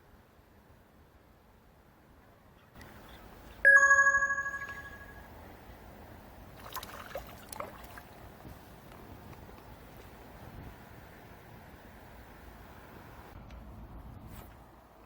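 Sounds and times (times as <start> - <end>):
bell-like chime: 3.7 - 5.3.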